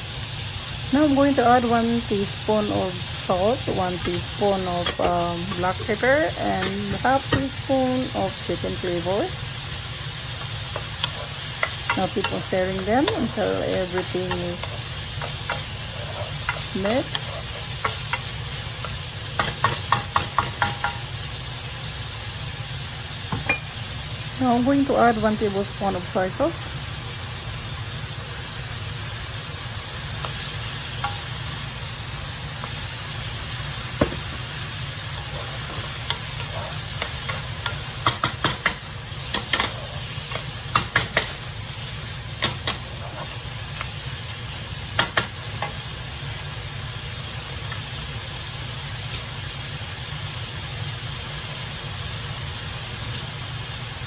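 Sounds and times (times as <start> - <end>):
meat sizzling in a pan: 0.0 - 54.0
wooden spatula scraping a pan: 15.5 - 17.7, 35.2 - 37.5.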